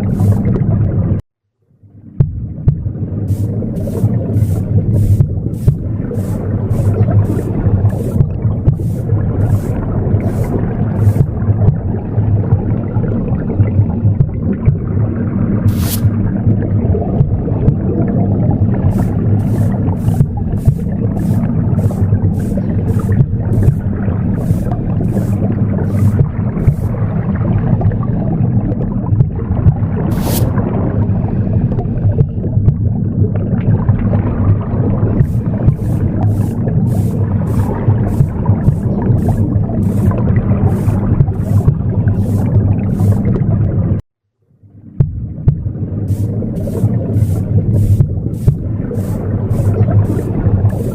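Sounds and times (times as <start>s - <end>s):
broom sweeping: 0.0s - 0.5s, 3.3s - 11.4s, 15.7s - 16.2s, 18.9s - 27.0s, 30.1s - 30.6s, 35.2s - 43.3s, 46.1s - 50.9s
low whooshing womb sound: 1.9s - 44.0s, 44.8s - 50.9s.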